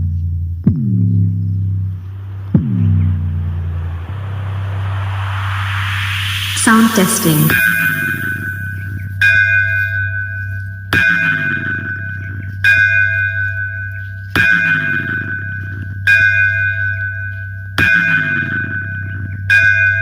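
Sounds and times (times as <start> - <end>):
low bass drone: 0.5 - 9.2.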